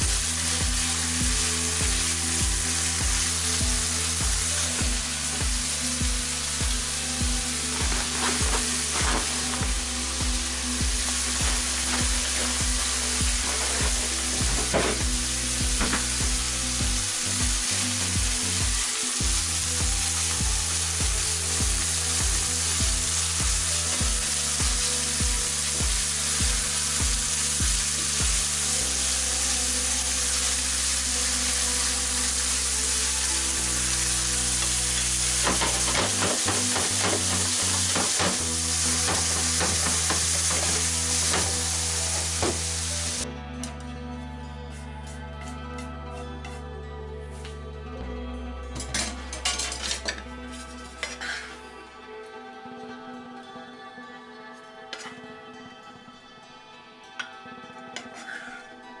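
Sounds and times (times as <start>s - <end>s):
meat sizzling in a frying pan: 0.0s - 43.2s
wooden utensil scraping a pan: 7.8s - 9.6s, 11.4s - 15.2s, 35.4s - 42.7s, 49.4s - 51.5s.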